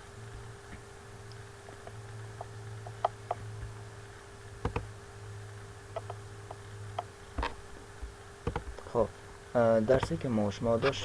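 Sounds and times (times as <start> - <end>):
low electrical hum: 0.0 - 11.0
computer mouse clicks: 4.6 - 4.9, 6.0 - 7.5, 8.4 - 8.9.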